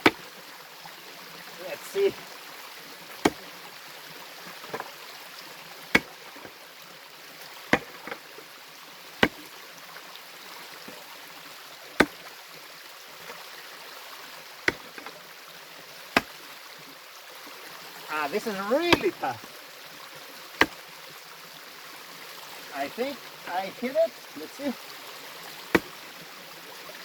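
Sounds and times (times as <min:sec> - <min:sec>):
pickaxe striking rock: 0:00.0 - 0:00.2, 0:03.2 - 0:03.4, 0:05.9 - 0:06.2, 0:07.7 - 0:08.2, 0:09.2 - 0:09.4, 0:12.0 - 0:12.2, 0:14.7 - 0:15.1, 0:18.9 - 0:19.3, 0:20.6 - 0:20.8, 0:25.7 - 0:26.0
stream running: 0:00.0 - 0:27.0.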